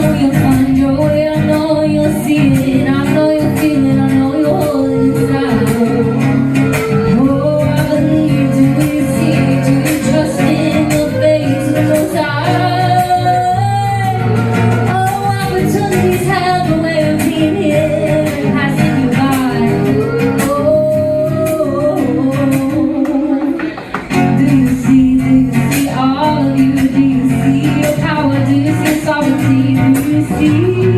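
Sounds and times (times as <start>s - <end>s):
person singing wavering melody: 0.0s - 18.2s
live song with guitar: 0.0s - 30.9s.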